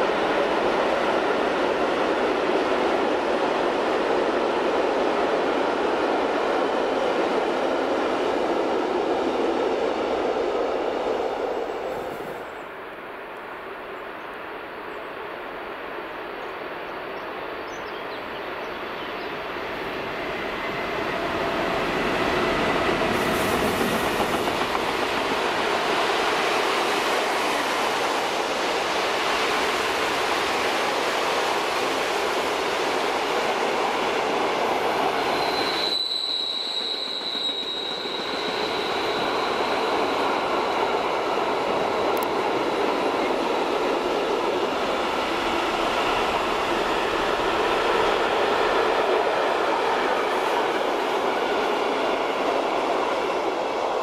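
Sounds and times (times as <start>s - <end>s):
freight train passing: 0.0s - 54.0s
train wheel squealing: 34.8s - 41.1s.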